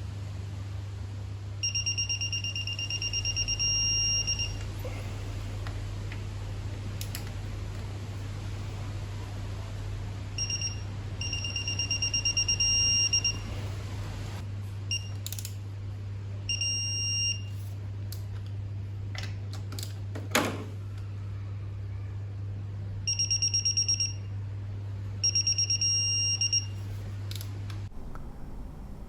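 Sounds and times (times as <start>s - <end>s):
torque wrench electronic beeping: 1.6s - 4.6s, 10.4s - 13.5s, 16.5s - 17.5s, 25.2s - 26.7s.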